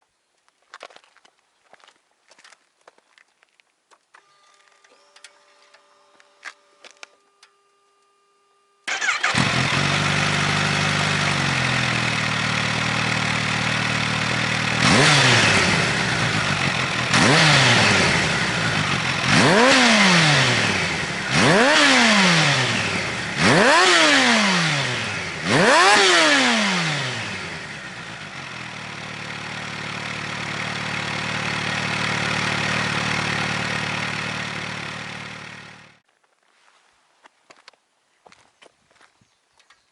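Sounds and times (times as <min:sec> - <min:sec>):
motorcycle throttle blips: 0:08.8 - 0:36.0
motorcycle engine idling: 0:08.9 - 0:36.0.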